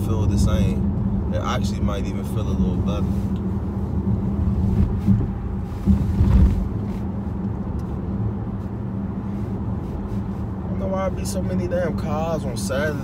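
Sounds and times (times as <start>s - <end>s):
car engine and tyre drone: 0.0s - 13.0s
low thumps: 4.1s - 6.9s.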